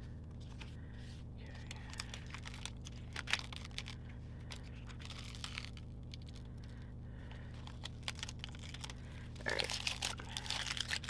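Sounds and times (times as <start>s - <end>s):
steady low hum: 0.0s - 11.0s
sticker paper crinkling: 1.5s - 6.4s, 7.6s - 11.0s.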